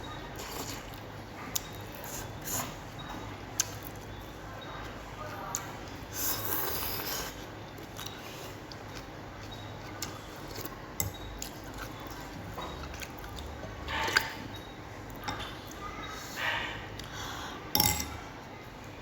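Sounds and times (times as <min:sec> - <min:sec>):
slurping noodle soup: 0:06.1 - 0:07.5
spoon clinking against bowl: 0:17.8 - 0:18.2.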